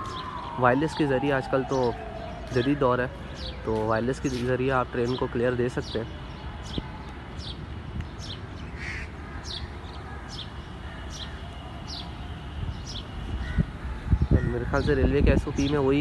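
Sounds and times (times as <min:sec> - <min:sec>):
bird chirping: 0:01.6 - 0:13.4.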